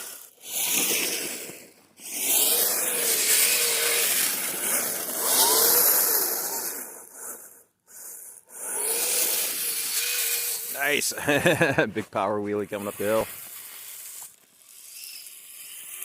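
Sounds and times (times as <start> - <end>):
electric motor whining: 0.0 - 10.8
steady hiss: 10.5 - 15.0.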